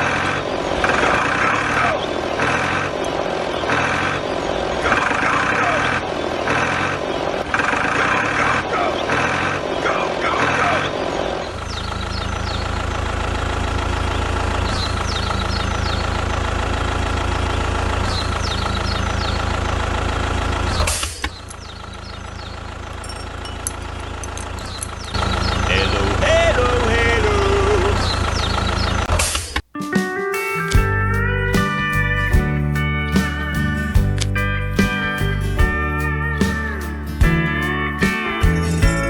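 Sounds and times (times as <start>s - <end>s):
tractor engine humming: 11.4s - 29.1s, 30.5s - 39.0s.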